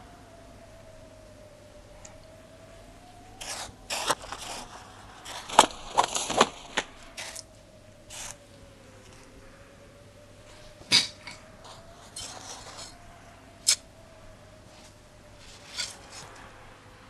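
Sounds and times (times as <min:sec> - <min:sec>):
faint wavering high tone: 0:00.0 - 0:17.0
scraping and rustling noises: 0:03.4 - 0:07.5, 0:08.1 - 0:08.4, 0:10.4 - 0:13.0, 0:14.6 - 0:16.6.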